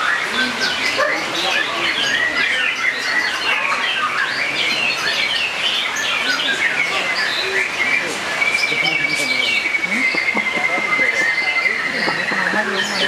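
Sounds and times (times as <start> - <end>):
songbirds chorus: 0.0 - 13.0.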